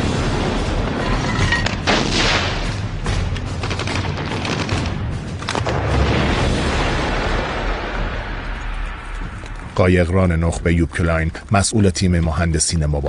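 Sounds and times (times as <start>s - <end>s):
gunshots and gunfire bursts: 0.0s - 7.9s.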